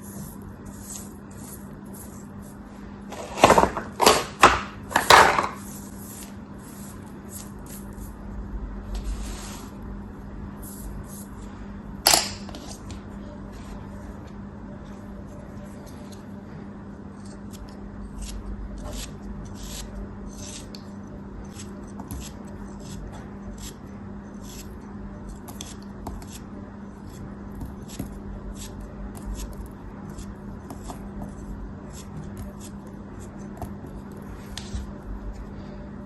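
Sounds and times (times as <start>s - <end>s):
low hum: 5.7s - 20.3s.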